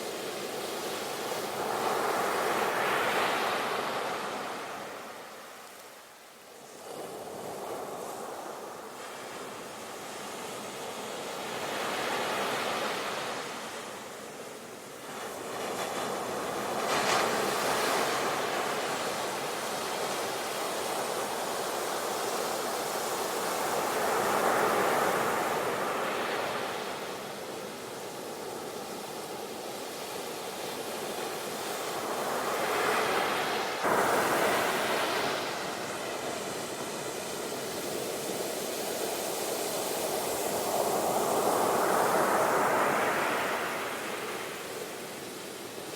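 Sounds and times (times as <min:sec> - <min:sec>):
sea waves surging: 0:31.5 - 0:45.2.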